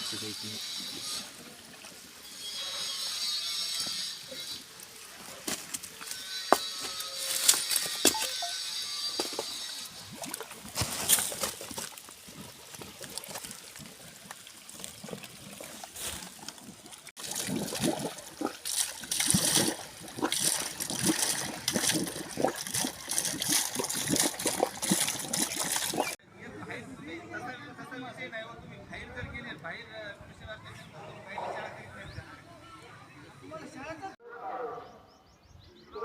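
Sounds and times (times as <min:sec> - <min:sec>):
water trickling and splashing: 0:00.0 - 0:06.4, 0:09.2 - 0:26.2.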